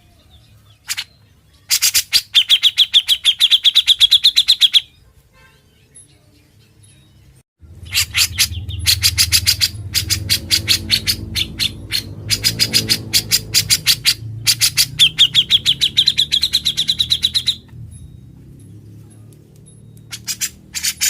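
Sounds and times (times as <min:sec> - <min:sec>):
bulbul singing rapid notes: 0:07.7 - 0:21.0.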